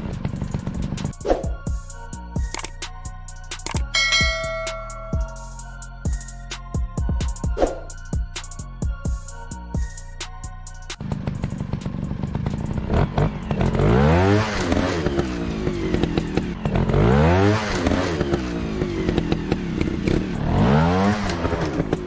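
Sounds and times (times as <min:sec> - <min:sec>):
motorcycle engine revving: 0:00.0 - 0:01.7, 0:11.0 - 0:22.0.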